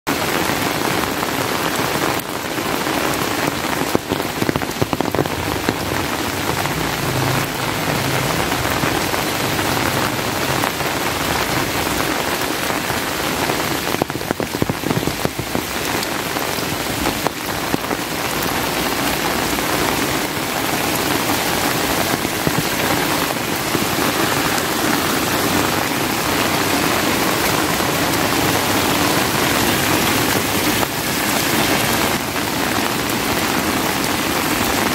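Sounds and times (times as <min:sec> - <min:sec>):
sharp raindrop hits: 0:00.1 - 0:34.9
steady rain falling: 0:00.1 - 0:34.9.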